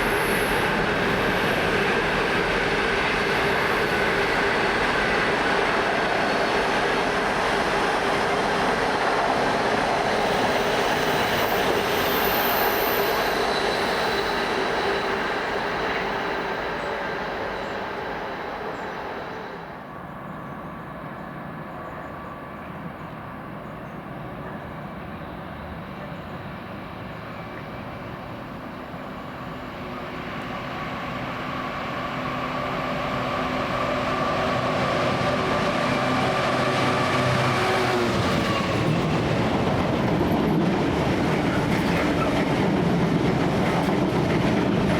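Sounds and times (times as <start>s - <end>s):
trains running: 0.0s - 44.9s.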